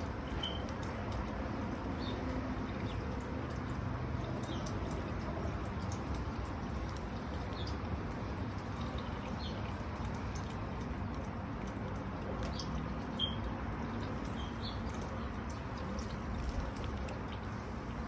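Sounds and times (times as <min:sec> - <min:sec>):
bird chirping: 0:12.5 - 0:16.1.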